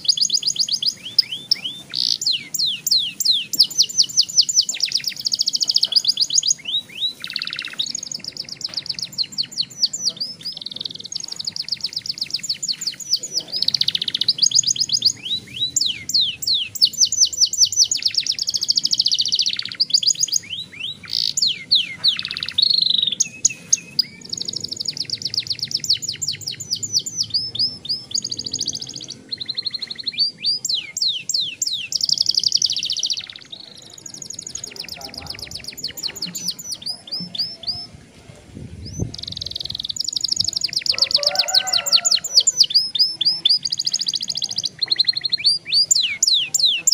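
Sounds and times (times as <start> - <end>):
canary singing rolling trills: 0.0 - 38.2, 38.8 - 46.9.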